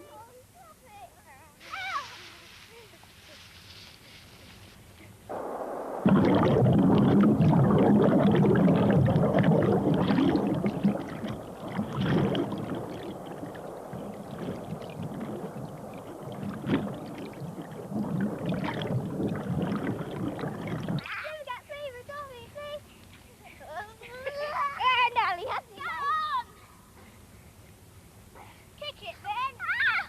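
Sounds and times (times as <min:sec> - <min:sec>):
water splashing and churning: 0:05.3 - 0:21.1.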